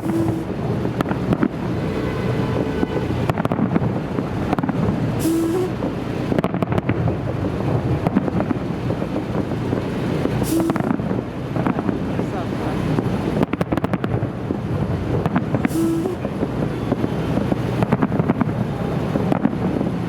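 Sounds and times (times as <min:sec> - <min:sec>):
constant rumble: 0:00.0 - 0:20.0
wind on microphone: 0:00.0 - 0:20.0
fireworks booms and bangs: 0:06.3 - 0:12.0, 0:13.4 - 0:18.6.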